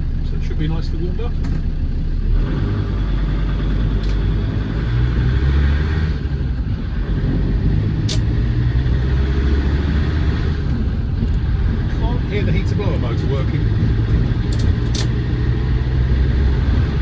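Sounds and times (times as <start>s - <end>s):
diesel engine rumble: 0.0s - 17.0s
road noise: 0.0s - 17.0s
sharp click: 8.1s - 8.3s, 14.5s - 15.2s.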